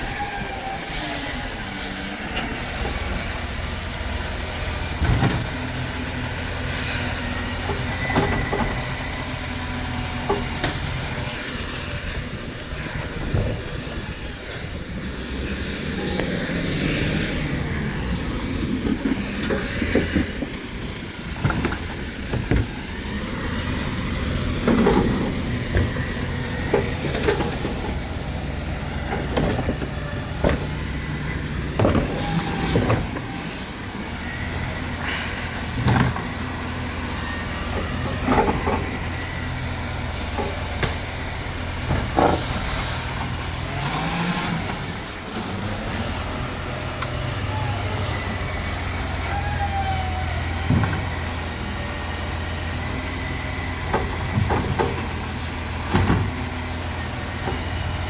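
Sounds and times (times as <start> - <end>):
garbage truck engine running: 0.0 - 58.0
sharp clunks and bangs: 55.9 - 56.5.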